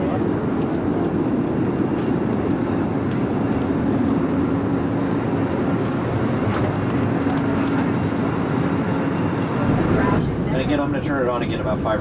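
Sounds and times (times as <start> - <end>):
airplane cabin roar: 0.0 - 12.0.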